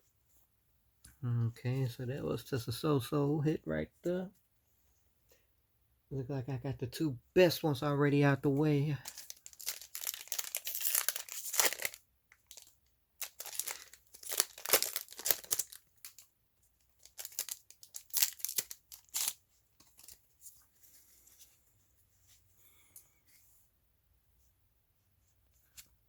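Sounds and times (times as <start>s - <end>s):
foil wrapper crinkling and tearing: 9.0s - 20.2s.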